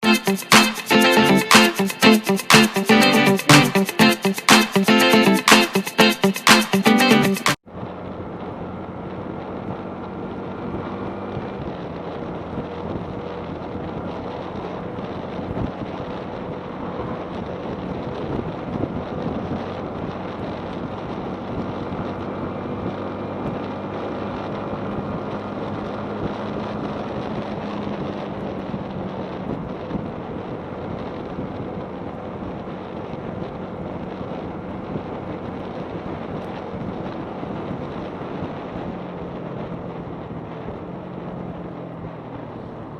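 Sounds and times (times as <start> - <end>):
motorcycle engine running: 7.6 - 42.9
wind buffeting microphone: 7.9 - 23.8, 24.6 - 42.9.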